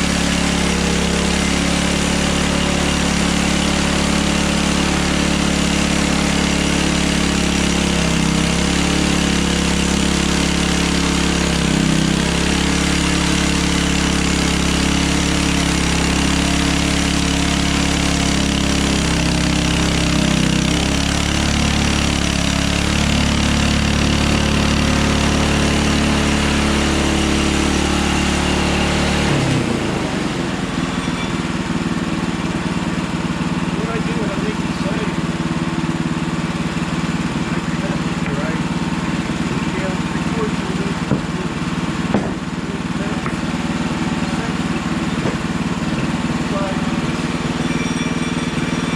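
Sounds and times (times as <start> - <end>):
sawmill engine running: 0.0 - 48.9
band blade cutting log: 42.1 - 42.5.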